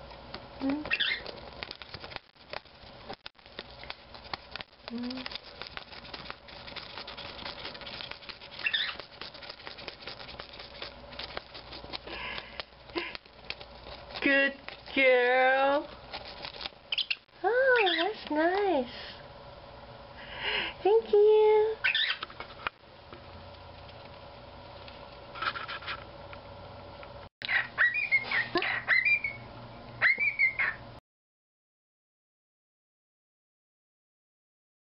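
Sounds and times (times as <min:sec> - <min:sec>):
faint room hum: 0:00.0 - 0:31.0
bird beak tapping paper: 0:00.3 - 0:18.4
bird squeak: 0:00.8 - 0:01.4, 0:08.5 - 0:09.1, 0:16.9 - 0:18.2, 0:21.8 - 0:22.2, 0:27.5 - 0:30.8
parrot chirping and whistling: 0:00.9 - 0:01.4, 0:08.5 - 0:09.1, 0:16.9 - 0:18.2, 0:21.8 - 0:22.2, 0:27.5 - 0:30.8.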